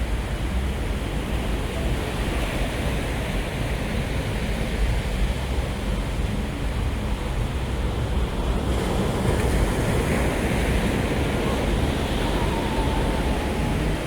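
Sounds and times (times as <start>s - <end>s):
wind on microphone: 5.4s - 14.0s
waves washing on shore: 7.9s - 14.0s.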